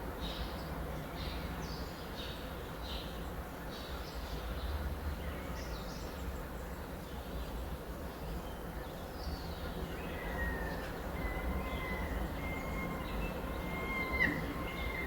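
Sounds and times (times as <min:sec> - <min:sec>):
thin steady bird whistle: 0:10.1 - 0:15.0.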